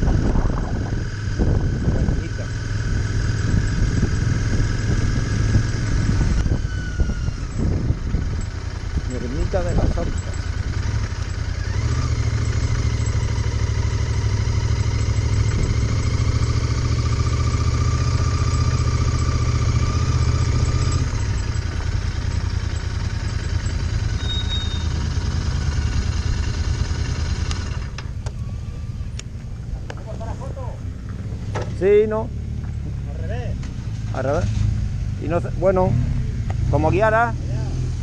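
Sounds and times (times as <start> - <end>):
motorcycle engine running: 0.0 - 38.0
sharp clicks: 27.4 - 28.4.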